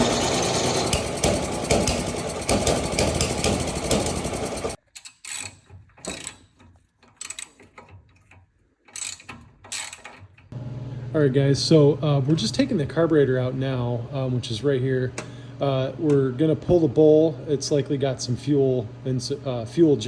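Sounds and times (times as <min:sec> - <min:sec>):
small engine cranking: 0:00.0 - 0:10.5.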